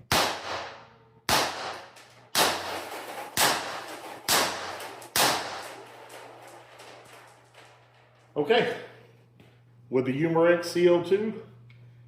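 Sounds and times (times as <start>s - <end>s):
air gun shots cracking: 0.0s - 6.2s.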